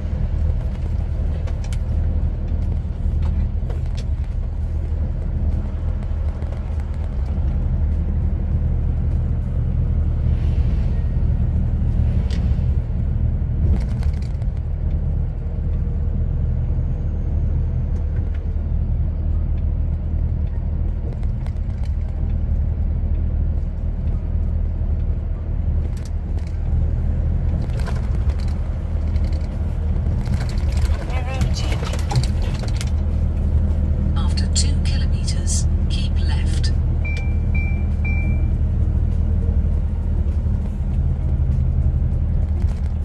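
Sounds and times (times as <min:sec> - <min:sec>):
lorry diesel engine driving: 0:00.0 - 0:43.0
road noise: 0:00.0 - 0:43.0
faint clicks and rattles: 0:27.4 - 0:33.1.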